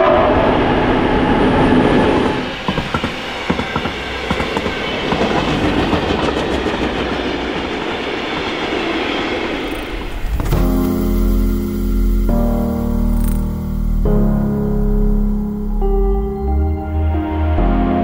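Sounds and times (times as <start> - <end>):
train rushing past: 0.0 - 16.3
wheels clicking over rail joints: 2.6 - 9.0
music: 10.2 - 18.0.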